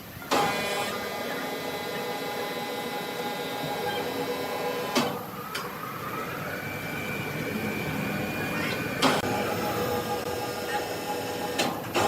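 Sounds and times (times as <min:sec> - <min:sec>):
sawmill machinery humming: 0:00.1 - 0:12.0
rising whine: 0:01.0 - 0:12.0.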